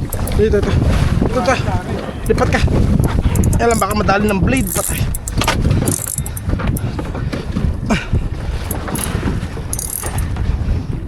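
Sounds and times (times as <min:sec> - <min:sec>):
wind buffeting microphone: 0:00.0 - 0:11.0
faint clicks: 0:03.3 - 0:03.9.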